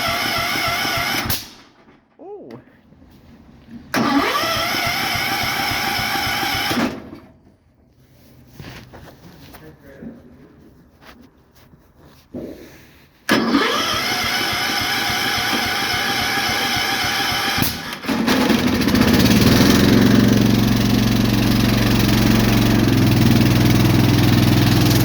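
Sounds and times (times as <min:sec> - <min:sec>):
single-cylinder engine running: 0:00.0 - 0:01.5, 0:03.9 - 0:07.4, 0:13.3 - 0:25.0
starter motor cranking: 0:00.0 - 0:01.9, 0:03.9 - 0:07.4, 0:13.3 - 0:25.0.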